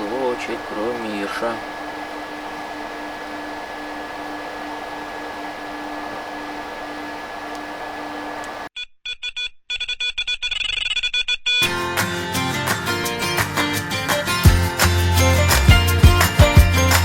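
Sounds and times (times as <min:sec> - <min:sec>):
steady hum with fixed tones: 0:00.0 - 0:08.7
guitar music: 0:11.6 - 0:17.0.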